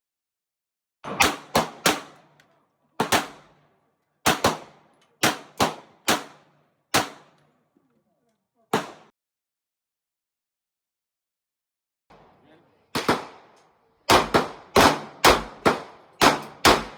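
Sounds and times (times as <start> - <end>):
gunshots with echo: 1.0 - 2.2, 12.9 - 13.5, 14.1 - 16.9.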